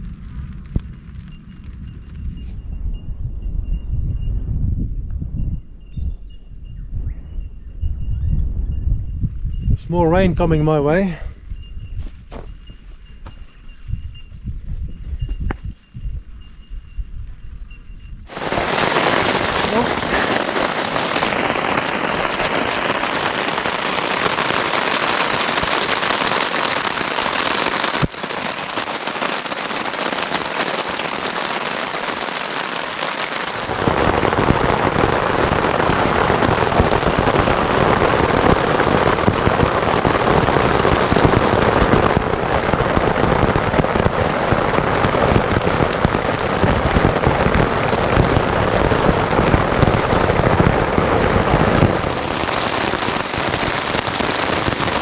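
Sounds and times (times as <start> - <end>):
heavy rain falling: 18.3 - 55.0.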